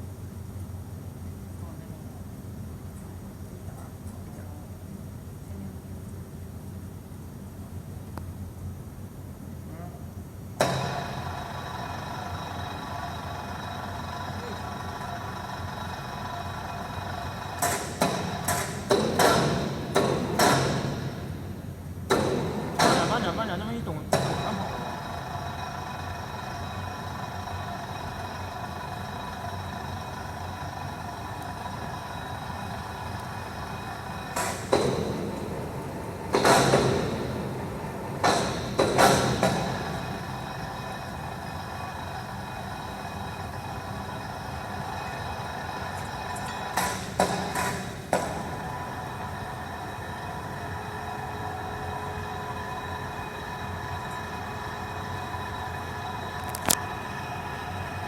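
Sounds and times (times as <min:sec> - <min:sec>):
industrial machinery humming: 0:07.5 - 0:58.0
sharp metallic knocks: 0:17.6 - 0:23.5, 0:34.2 - 0:40.3.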